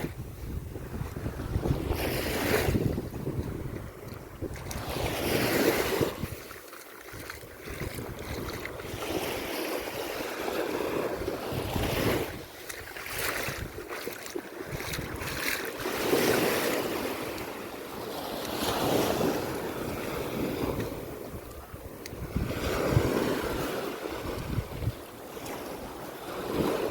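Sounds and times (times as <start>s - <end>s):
waves washing onto beach: 0.0s - 26.9s
wind on microphone: 0.0s - 26.9s.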